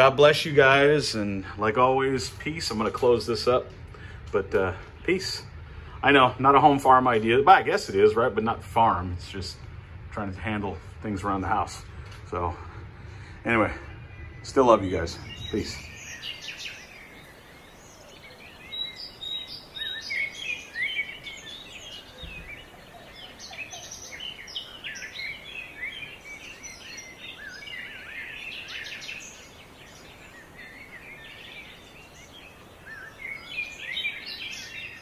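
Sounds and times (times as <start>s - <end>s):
small birds chirping and singing: 0.0s - 35.0s.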